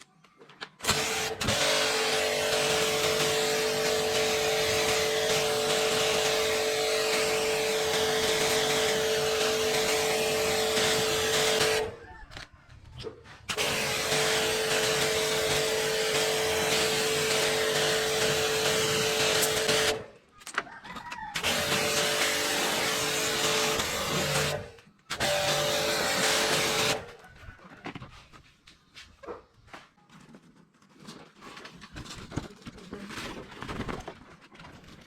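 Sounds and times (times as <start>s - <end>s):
pressure washer motor hum: 0.8s - 12.0s, 13.5s - 20.1s, 21.4s - 27.1s.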